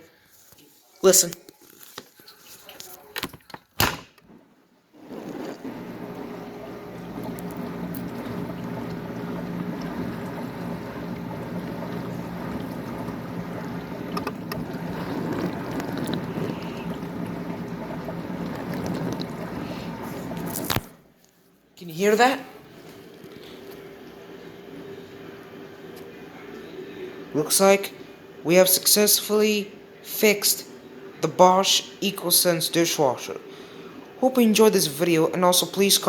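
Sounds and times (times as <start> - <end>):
water spraying inside dishwasher: 5.0 - 20.6
wash pump humming: 5.0 - 20.9, 22.0 - 36.0.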